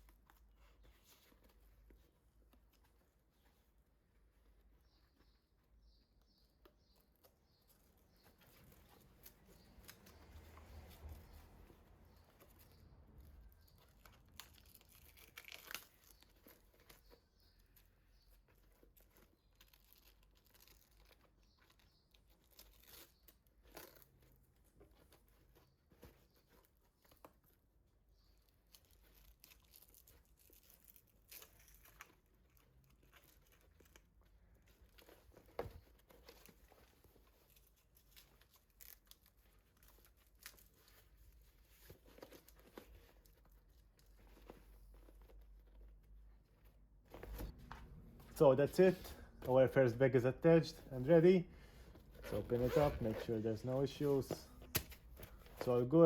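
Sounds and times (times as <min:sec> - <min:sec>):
fabric bag handling: 0:00.0 - 0:56.0
velcro straps tearing: 0:13.5 - 0:17.2, 0:18.9 - 0:24.4, 0:28.6 - 0:34.2, 0:37.2 - 0:45.3, 0:52.1 - 0:55.7.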